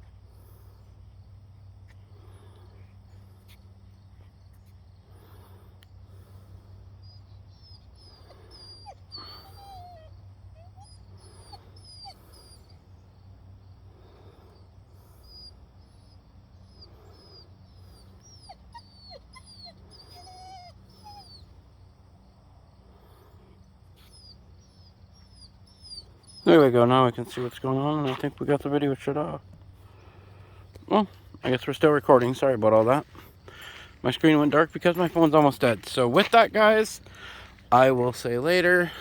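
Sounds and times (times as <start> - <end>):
small birds chirping: 0.0 - 39.0
puppies whimpering: 7.0 - 13.0, 14.0 - 21.6, 24.0 - 29.3, 29.9 - 39.0.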